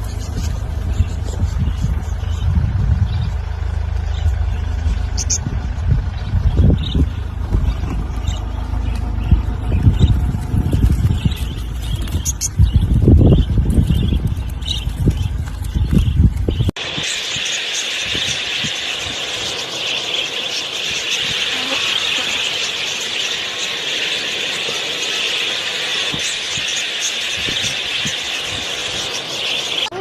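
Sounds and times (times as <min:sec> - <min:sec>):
small birds chattering: 0:00.0 - 0:30.0.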